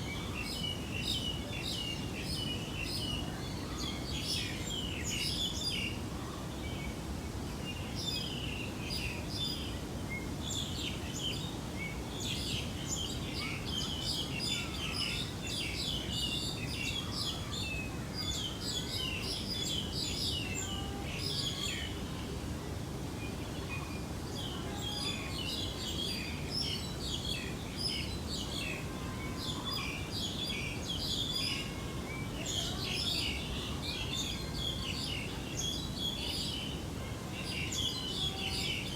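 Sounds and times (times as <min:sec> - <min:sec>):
low background noise: 0:00.0 - 0:38.9
small birds chirping: 0:07.6 - 0:22.0.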